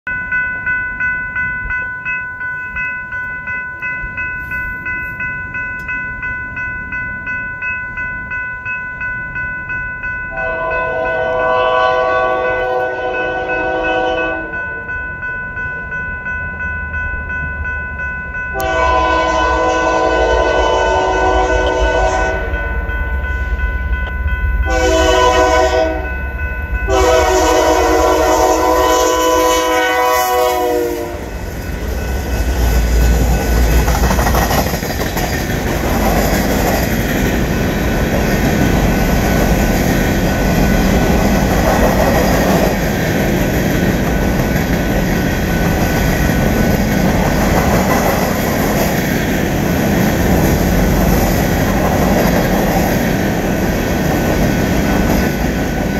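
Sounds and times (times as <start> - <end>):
locomotive horn blasts: 10.3 - 14.6, 18.5 - 22.8, 24.6 - 26.2, 26.9 - 31.4
freight cars rumbling on rails: 18.5 - 55.9.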